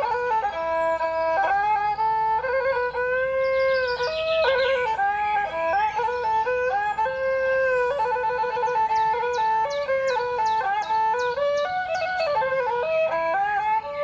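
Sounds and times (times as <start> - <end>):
flute-like melody with trills: 0.0 - 14.0
high bird chirps: 3.7 - 8.7.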